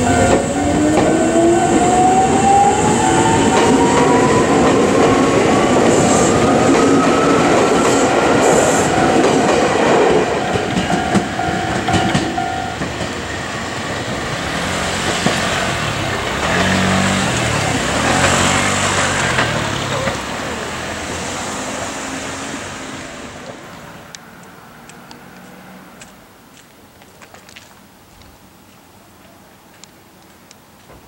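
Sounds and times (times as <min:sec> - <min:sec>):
lower rising whine: 0:00.0 - 0:09.1
electric train motors whining: 0:00.0 - 0:22.9.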